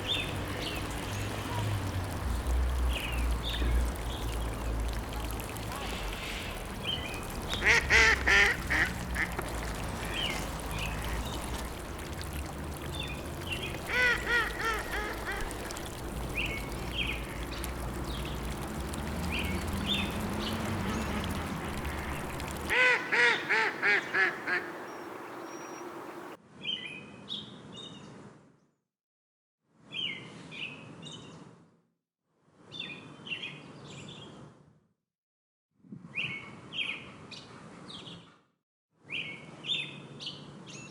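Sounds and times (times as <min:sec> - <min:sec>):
small birds chirping: 0:00.0 - 0:26.4
large bird calling: 0:13.8 - 0:15.9.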